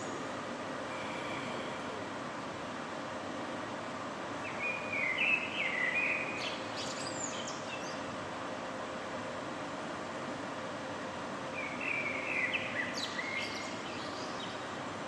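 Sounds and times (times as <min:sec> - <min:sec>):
city background hum: 0:00.0 - 0:15.0
songbird singing: 0:04.4 - 0:08.2, 0:11.5 - 0:14.8.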